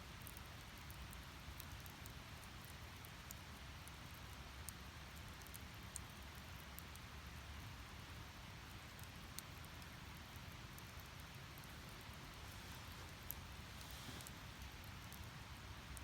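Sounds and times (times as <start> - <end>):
burning wood crackling and popping: 8.6 - 16.0
fire flames rumbling and hissing: 11.0 - 16.0.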